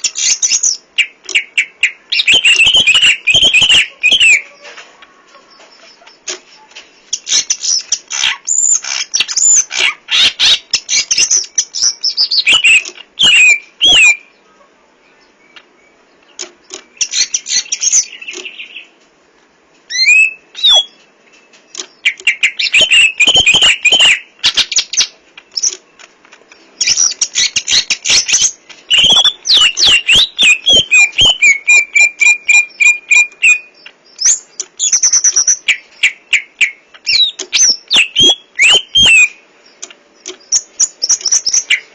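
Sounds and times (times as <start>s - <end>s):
bird singing whistled phrases: 0.0s - 4.5s, 7.4s - 14.3s, 19.9s - 21.0s, 22.1s - 25.1s, 26.8s - 39.4s.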